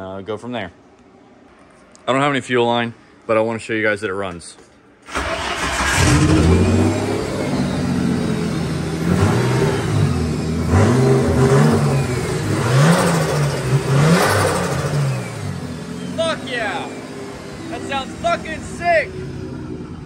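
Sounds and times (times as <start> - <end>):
car engine revving: 5.1 - 20.0.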